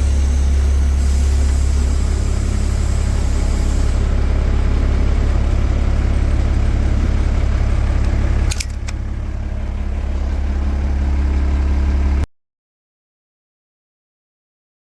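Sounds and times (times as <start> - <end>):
bus diesel engine rumbling: 0.0 - 12.3
sharp clicks: 8.5 - 9.0.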